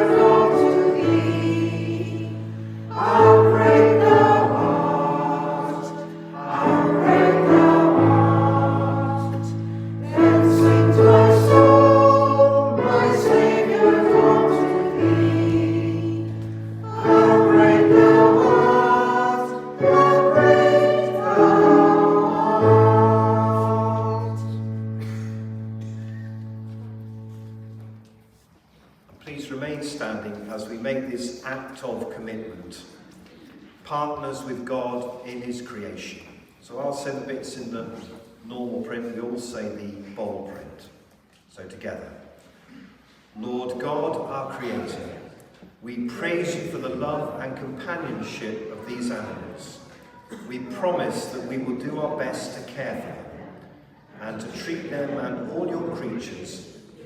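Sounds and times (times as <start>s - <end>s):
many voices singing a hymn: 0.0s - 25.6s.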